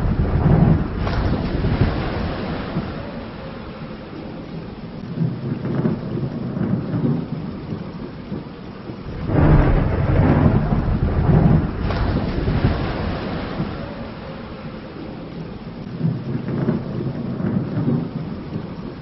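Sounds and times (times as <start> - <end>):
rolling thunder: 0.0 - 19.0
steady rain: 0.0 - 19.0.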